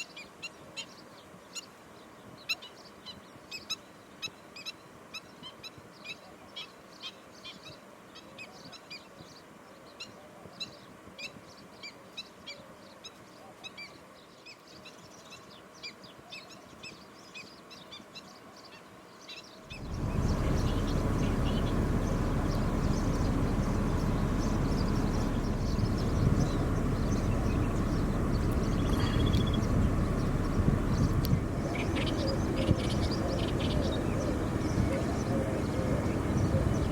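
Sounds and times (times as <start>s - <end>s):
bird giving sharp calls: 19.7s - 36.9s
loud steady rushing noise: 19.7s - 36.9s.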